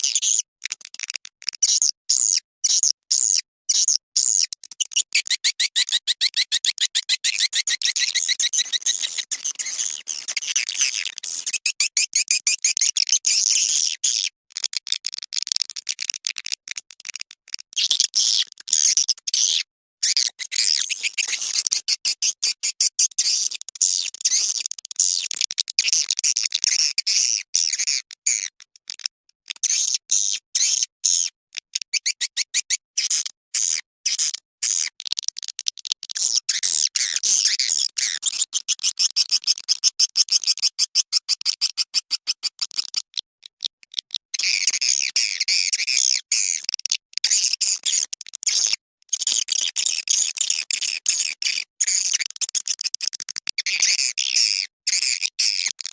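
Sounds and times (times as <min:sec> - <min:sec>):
rapid high bird chirping: 0:05.0 - 0:12.4.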